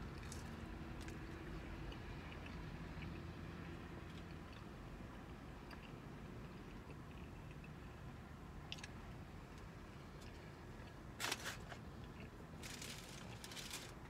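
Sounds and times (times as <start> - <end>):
person chewing food: 0.2 - 3.4, 4.0 - 8.0, 11.8 - 13.4.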